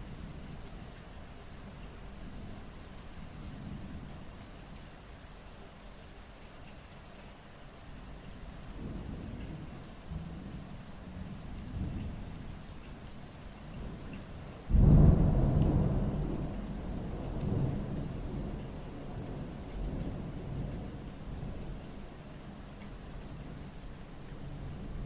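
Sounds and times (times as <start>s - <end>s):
rain falling: 0.0s - 25.0s
low rolling thunder: 14.7s - 21.8s.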